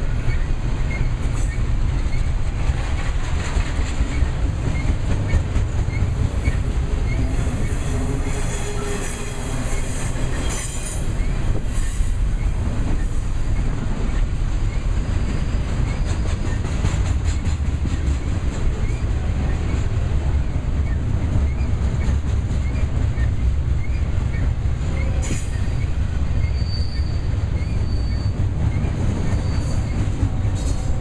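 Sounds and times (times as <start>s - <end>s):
freight train cars rolling: 0.0s - 31.0s
high wheel squeal: 5.9s - 13.2s, 14.1s - 16.6s, 22.6s - 31.0s.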